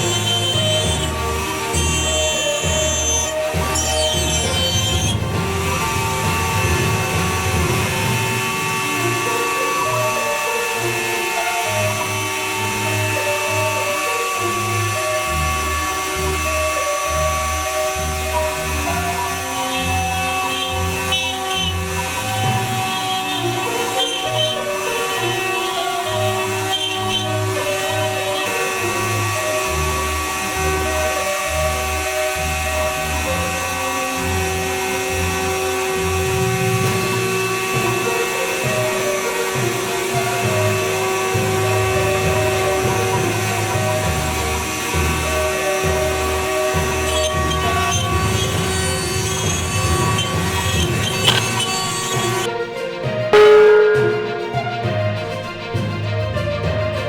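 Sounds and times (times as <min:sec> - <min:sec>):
router spindle whine: 0:00.0 - 0:52.5
background music with bass: 0:00.0 - 0:57.0.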